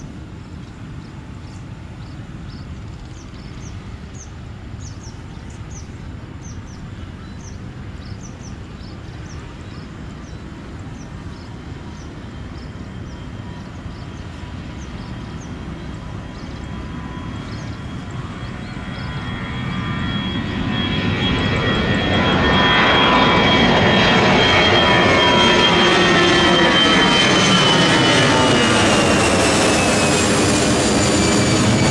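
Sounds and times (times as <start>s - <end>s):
high steady engine whine: 0.0s - 31.9s
jet airliner taking off: 0.0s - 31.9s
small birds chirping: 0.6s - 20.0s.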